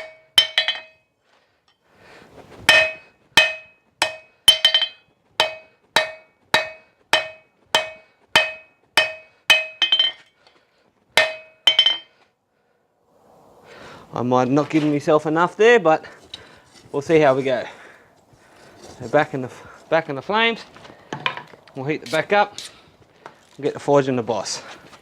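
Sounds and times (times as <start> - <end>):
hammer striking metal on anvil: 0.0 - 1.0, 2.7 - 10.3, 11.2 - 12.1.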